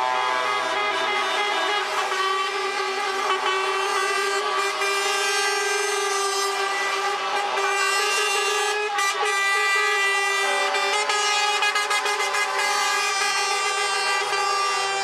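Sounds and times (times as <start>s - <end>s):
truck air horns: 0.0s - 15.0s.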